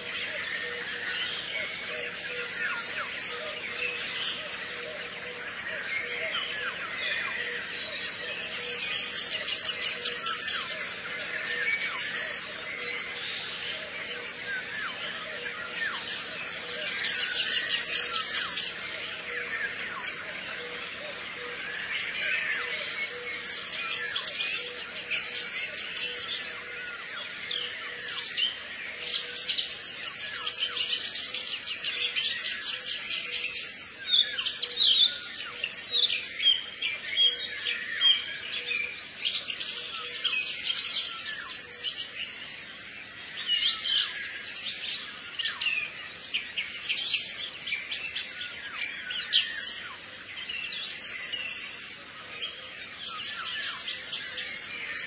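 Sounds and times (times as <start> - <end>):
small birds chirping and trilling: 0.0 - 55.0.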